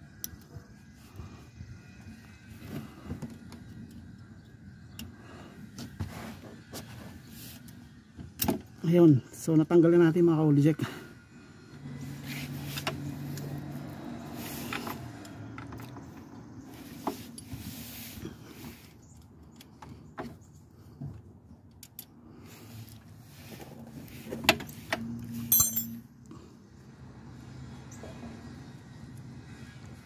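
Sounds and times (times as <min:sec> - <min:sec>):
metal tools clanking on car parts: 0:24.4 - 0:26.1
ringing metallic hits: 0:25.5 - 0:26.1.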